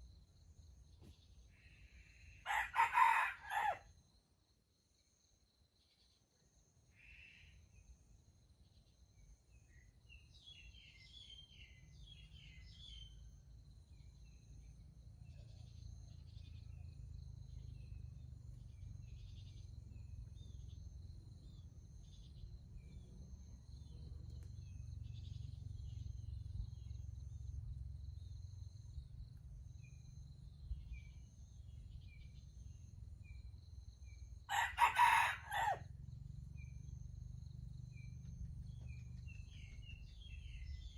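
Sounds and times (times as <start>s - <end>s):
rooster crowing: 2.4s - 3.9s, 34.5s - 35.9s
low steady rumble: 35.9s - 40.9s
small birds chirping: 36.6s - 40.9s.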